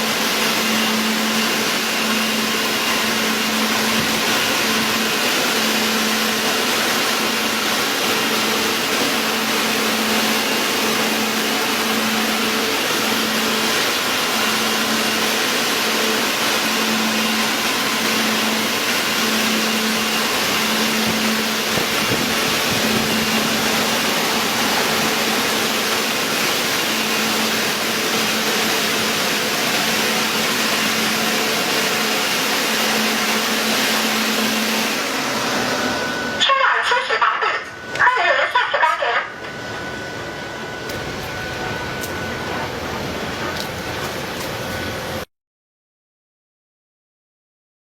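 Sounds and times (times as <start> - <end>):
machine hissing: 0.0 - 36.4
low pulsing hum: 9.1 - 31.6, 39.4 - 45.2.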